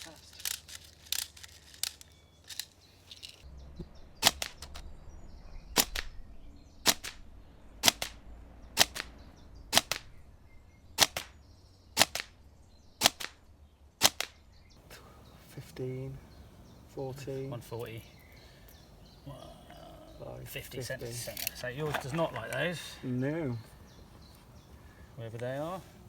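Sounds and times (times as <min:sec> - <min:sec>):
airsoft gun shots: 0:04.2 - 0:04.8, 0:05.8 - 0:06.2, 0:06.8 - 0:07.2, 0:07.8 - 0:08.2, 0:08.8 - 0:10.2, 0:11.0 - 0:11.4, 0:12.0 - 0:12.4, 0:13.0 - 0:13.4, 0:14.0 - 0:14.4.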